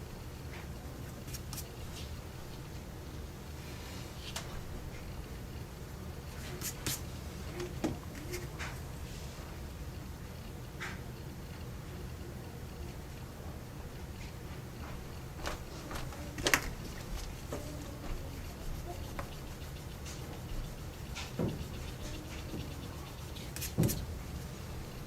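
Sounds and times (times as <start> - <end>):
low steady hum: 0.0 - 25.0
drawing tools tapping on paper: 14.8 - 24.1.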